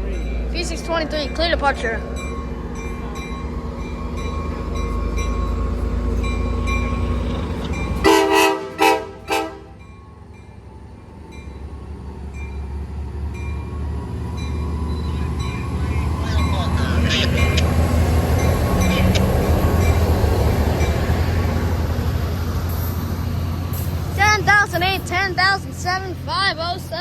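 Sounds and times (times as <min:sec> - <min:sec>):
train bell ringing: 0:00.0 - 0:08.3, 0:09.7 - 0:21.7
diesel locomotive engine rumble: 0:00.0 - 0:27.0
train horn blasts: 0:08.0 - 0:09.8.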